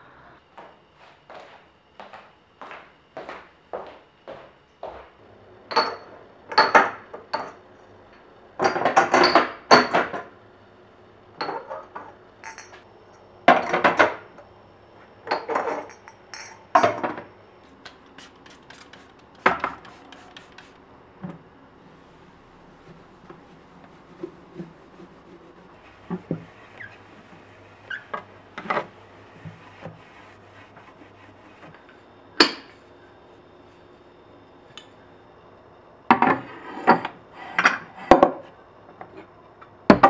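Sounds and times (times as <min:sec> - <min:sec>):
dishes and utensils clattering: 0:05.7 - 0:07.6, 0:08.6 - 0:10.3, 0:11.4 - 0:12.8, 0:15.3 - 0:17.2.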